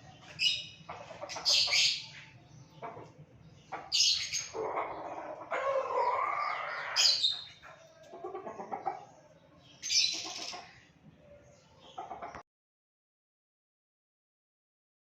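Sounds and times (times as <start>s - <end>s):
hens calling: 0.1s - 9.2s.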